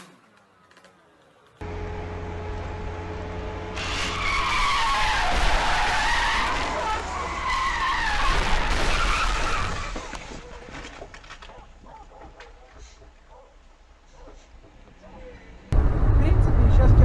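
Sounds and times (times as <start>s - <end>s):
engine and road hum: 0.0s - 17.0s
car tyres squealing: 3.7s - 10.8s.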